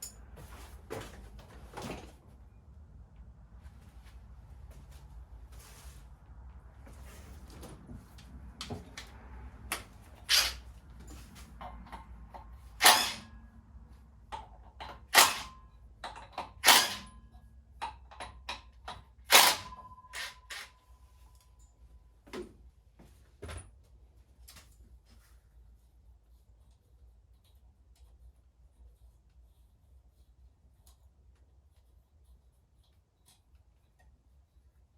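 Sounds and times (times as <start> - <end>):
metal tools clanking: 10.2 - 13.4
sharp metallic knocks: 12.8 - 13.4.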